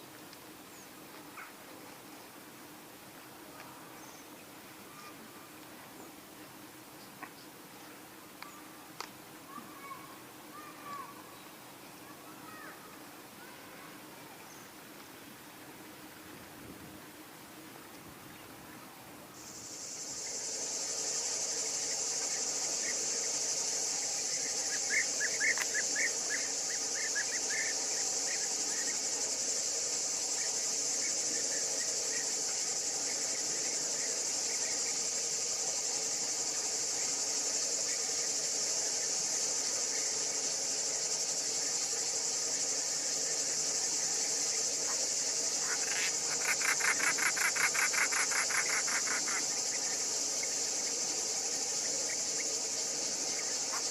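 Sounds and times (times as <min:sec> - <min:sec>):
high-pitched insect chorus: 0:03.5 - 0:14.8, 0:18.3 - 0:53.9
fast pulsing insect trill: 0:19.4 - 0:53.9
short insect chirps: 0:19.4 - 0:53.9.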